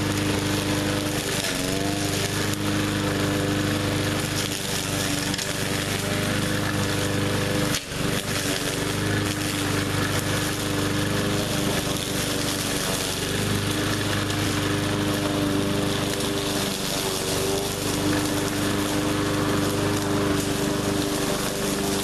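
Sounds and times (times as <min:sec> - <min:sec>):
push mower engine running: 0:00.0 - 0:22.0.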